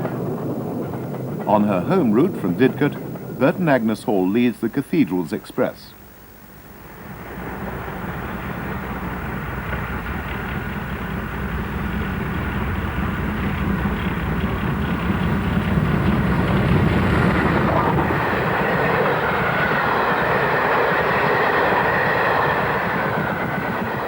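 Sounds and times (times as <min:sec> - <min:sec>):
steam locomotive hauling train: 0:00.0 - 0:06.0, 0:06.8 - 0:24.0.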